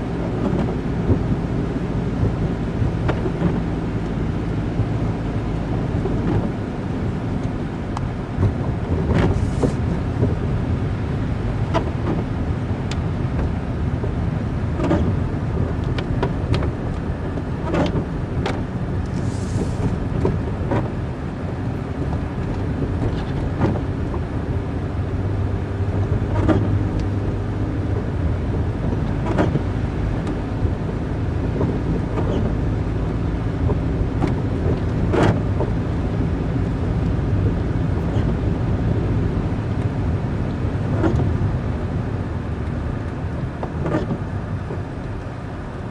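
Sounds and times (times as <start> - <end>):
car engine: 0.0 - 45.9
tyre rumble on rough road: 0.0 - 45.9
sharp clicks and knocks: 14.8 - 15.1, 15.8 - 19.2, 28.8 - 30.4, 41.0 - 41.3.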